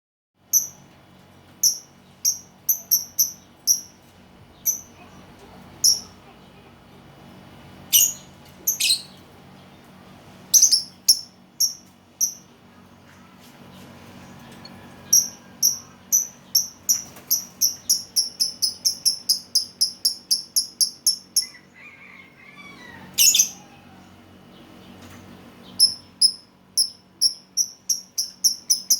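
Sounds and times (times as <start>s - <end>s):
bird high-pitched chirps: 5.8s - 6.2s, 7.9s - 9.2s, 10.5s - 12.9s, 23.1s - 23.6s, 25.7s - 28.9s
lovebird chirping and calling: 7.9s - 9.2s, 10.5s - 12.4s, 14.4s - 21.8s, 23.1s - 23.6s, 25.7s - 28.9s.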